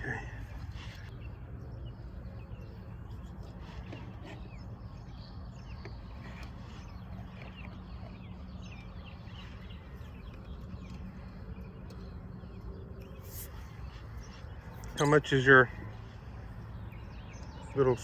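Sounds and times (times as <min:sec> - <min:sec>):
small birds chirping: 0:00.0 - 0:18.0
steady low rumble: 0:00.0 - 0:18.0.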